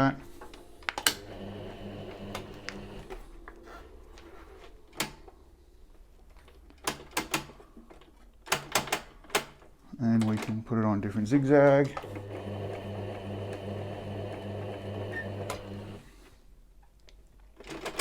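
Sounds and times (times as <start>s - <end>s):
sewing machine motor humming: 1.0s - 3.8s, 12.0s - 16.1s
sharp clicks and knocks: 4.9s - 5.4s, 6.3s - 10.6s.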